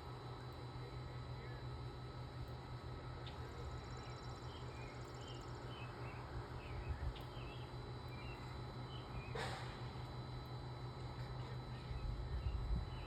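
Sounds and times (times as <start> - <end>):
steady low hum: 0.0 - 13.0
small birds chirping: 3.3 - 9.4.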